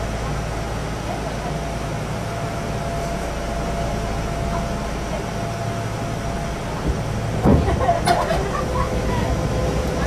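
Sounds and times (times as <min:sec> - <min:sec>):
mid-pitched whine: 0:00.0 - 0:10.0
train air conditioning hum: 0:00.0 - 0:10.0
train clunks: 0:02.9 - 0:10.0.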